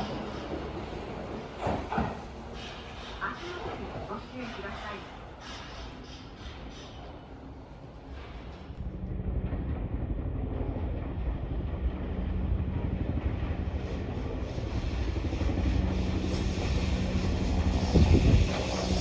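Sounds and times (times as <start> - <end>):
train wheels rumbling on rail: 0.0 - 19.0
electric train motor hum: 8.8 - 19.0.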